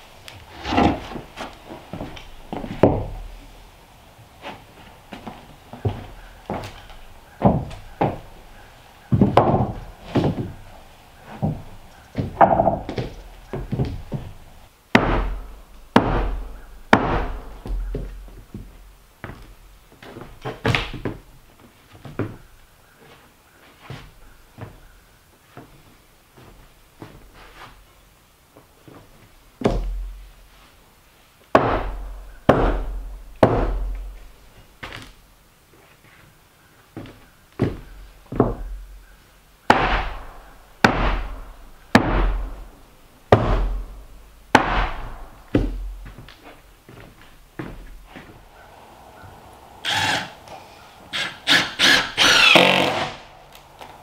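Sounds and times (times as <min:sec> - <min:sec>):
irregular knocks and thuds: 0:00.6 - 0:03.3, 0:04.4 - 0:22.5, 0:28.9 - 0:30.2, 0:31.5 - 0:35.1, 0:37.0 - 0:39.0, 0:39.7 - 0:42.7, 0:43.3 - 0:48.5.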